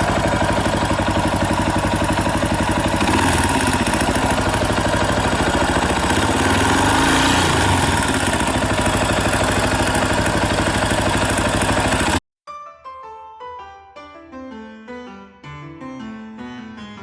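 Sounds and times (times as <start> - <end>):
motorcycle engine idling: 0.0 - 12.2
soft piano music: 12.5 - 17.0.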